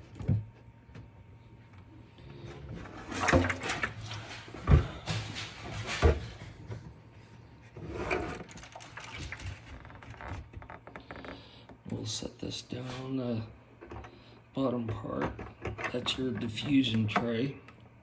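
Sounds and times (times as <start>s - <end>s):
plastic tank rattling and scraping: 2.4s - 6.9s, 7.8s - 11.4s, 12.7s - 17.3s.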